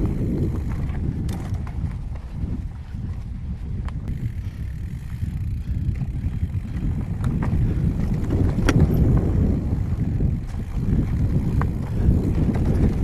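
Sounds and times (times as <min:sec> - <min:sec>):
bike clicks and rattles: 0:00.0 - 0:13.0
tyres rumbling on trail: 0:00.0 - 0:13.0
wind buffeting microphone: 0:00.0 - 0:13.0.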